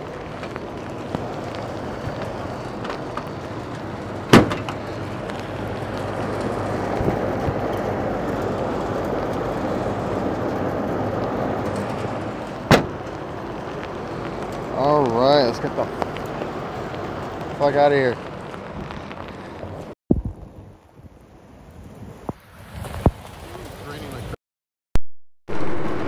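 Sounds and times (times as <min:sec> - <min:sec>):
heavy rain on a rooftop: 0:00.0 - 0:24.4
sharp knocks: 0:04.3 - 0:04.8, 0:12.7 - 0:13.1.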